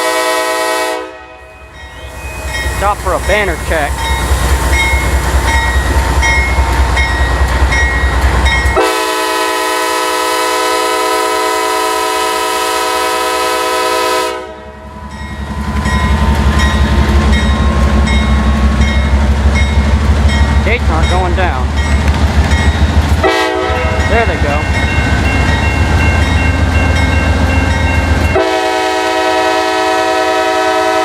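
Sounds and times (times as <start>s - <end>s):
loud many-pitched train horn: 0.0s - 1.5s, 8.8s - 14.8s, 23.2s - 24.0s, 28.3s - 31.0s
freight train rumbling: 0.0s - 31.0s.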